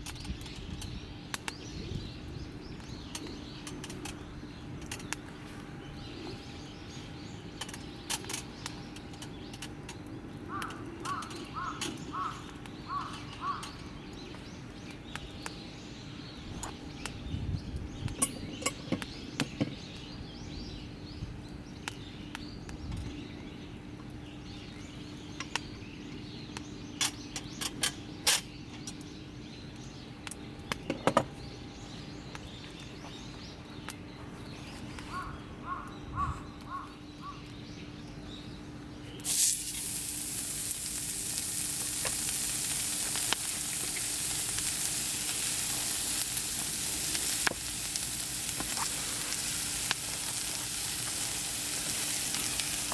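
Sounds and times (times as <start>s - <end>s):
bonfire crackling and popping: 39.2s - 52.9s
loud sizzling hiss: 39.2s - 52.9s.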